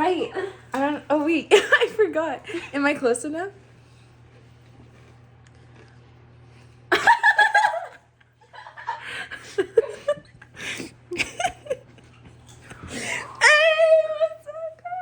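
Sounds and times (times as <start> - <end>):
low steady hum: 0.0 - 15.0
people laughing: 6.9 - 12.1.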